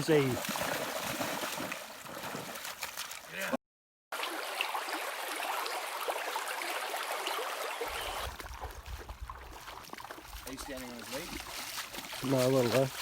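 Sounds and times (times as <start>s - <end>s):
river water rushing and splashing: 4.2s - 13.0s.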